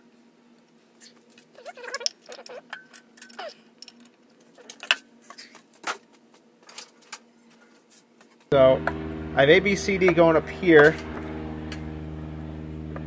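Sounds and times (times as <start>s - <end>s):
short squeaks: 1.0s - 3.6s.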